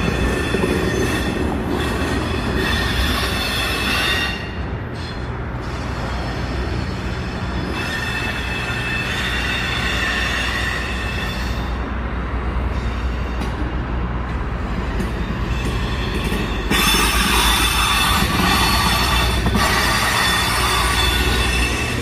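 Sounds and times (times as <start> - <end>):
train wheels rumbling on rail: 0.0 - 22.0
wheel flange squeal: 15.2 - 22.0.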